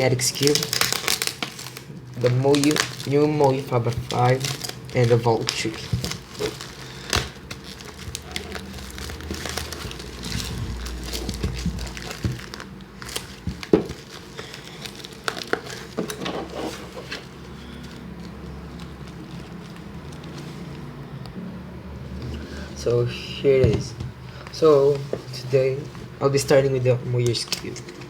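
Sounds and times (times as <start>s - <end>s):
plastic packaging crinkling: 0.0s - 21.2s.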